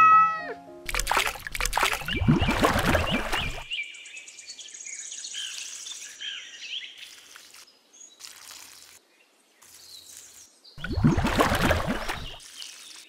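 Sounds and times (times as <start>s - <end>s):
birds chirping: 0.9s - 7.0s.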